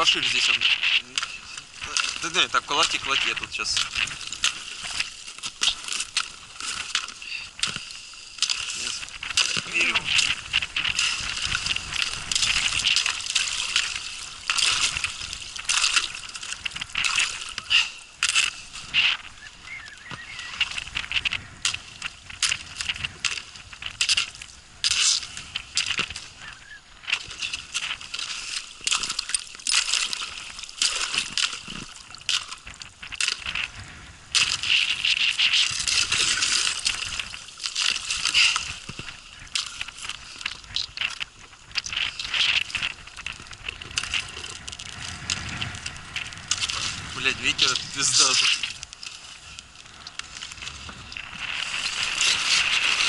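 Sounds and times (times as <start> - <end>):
water sloshing: 0.0 - 53.0
ice crackling and tinkling: 41.8 - 53.0.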